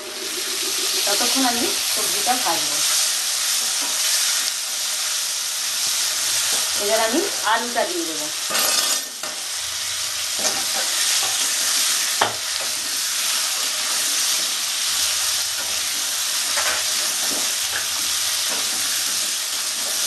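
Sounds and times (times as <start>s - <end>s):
vegetables sizzling in oil: 0.0s - 20.0s
metal spatula scraping: 8.5s - 9.4s.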